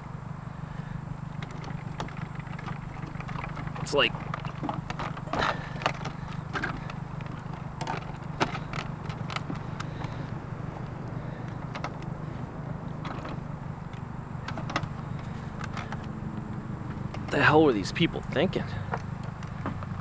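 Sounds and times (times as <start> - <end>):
vehicle engine idling: 0.0 - 20.0
junk being handled clicks: 1.4 - 10.3, 11.0 - 12.1, 13.0 - 16.2.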